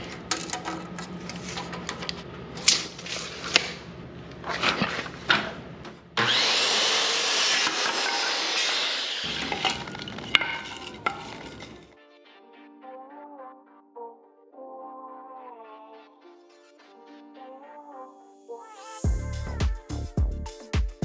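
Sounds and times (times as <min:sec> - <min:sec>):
power tool cutting wood: 0:06.2 - 0:11.8
wood knocking and clattering: 0:09.3 - 0:11.8.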